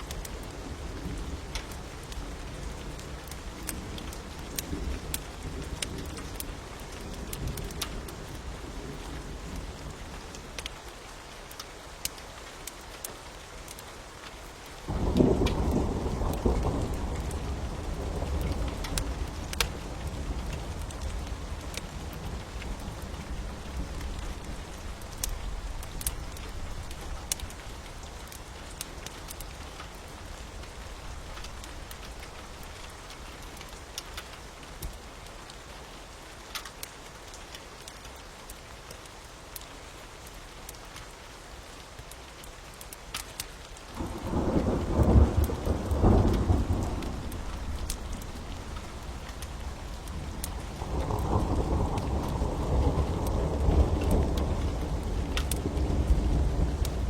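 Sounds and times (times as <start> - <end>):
steady rain: 0.0 - 57.0
sharp crackles: 11.4 - 35.0, 41.8 - 57.0
thunder rumbling: 14.9 - 29.1, 44.0 - 57.0.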